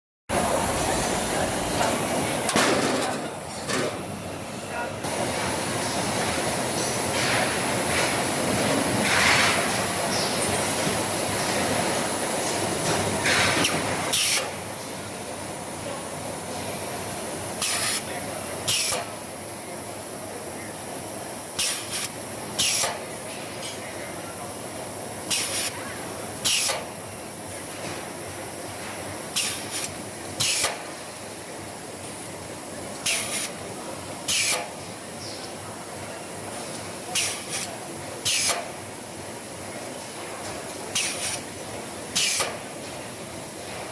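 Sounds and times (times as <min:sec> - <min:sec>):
factory background noise: 0:00.3 - 0:43.9
machine running: 0:00.3 - 0:43.9
pneumatic air hisses: 0:13.2 - 0:14.6, 0:17.6 - 0:18.1, 0:18.7 - 0:19.2, 0:21.6 - 0:23.0, 0:25.3 - 0:25.8, 0:26.4 - 0:26.9, 0:29.3 - 0:30.9, 0:33.0 - 0:33.6, 0:34.3 - 0:34.8, 0:37.1 - 0:38.7, 0:40.9 - 0:41.5, 0:42.1 - 0:42.7.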